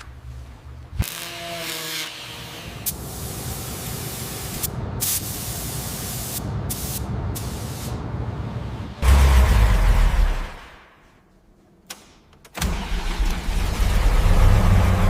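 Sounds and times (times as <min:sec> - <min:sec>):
spray hissing: 0:02.8 - 0:08.0
loud low rumble: 0:08.0 - 0:10.8.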